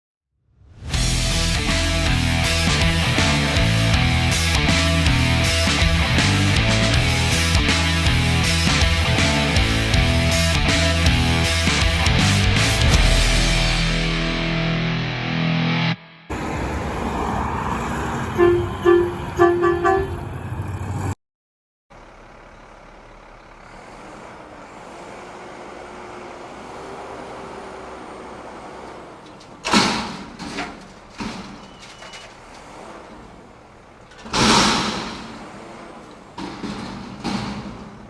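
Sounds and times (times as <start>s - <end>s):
truck engine running: 1.0s - 14.5s, 16.3s - 21.2s, 21.9s - 38.0s
truck horn toots: 18.2s - 20.4s.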